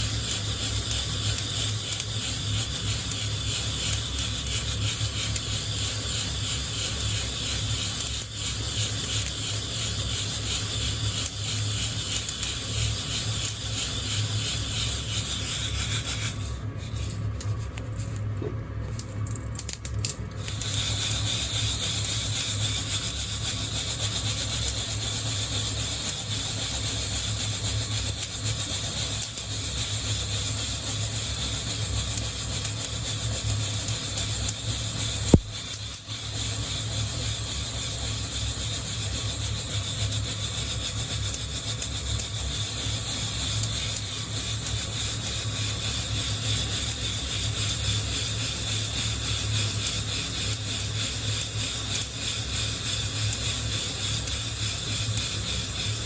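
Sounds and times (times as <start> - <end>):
sharp click: 35.3 - 36.0.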